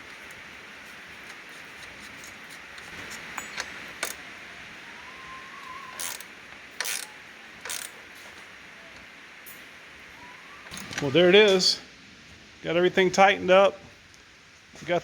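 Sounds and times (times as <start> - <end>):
sharp metal clicks: 2.8 - 4.2, 5.9 - 8.0
ratchet wrench ratcheting: 5.9 - 8.0.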